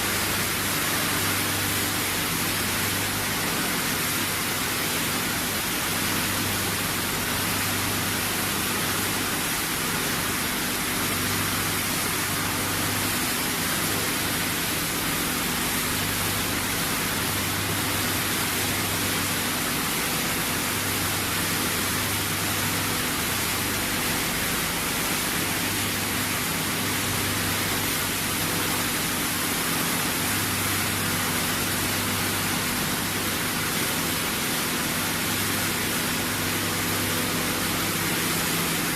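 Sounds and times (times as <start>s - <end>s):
machinery hissing with low hum: 0.0s - 38.9s.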